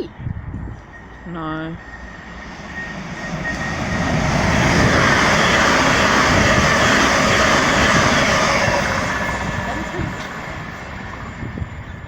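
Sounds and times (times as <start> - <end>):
train passing close by: 0.1 - 12.0.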